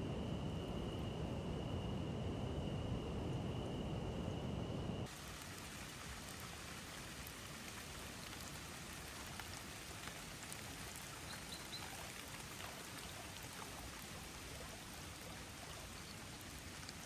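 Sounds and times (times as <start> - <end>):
light rain falling: 5.0 - 17.0.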